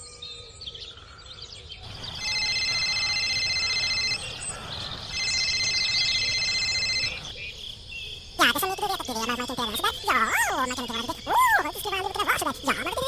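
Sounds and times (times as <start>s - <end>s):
faint bird chirps: 0.0s - 13.0s
electronic ringing tone: 1.8s - 7.3s.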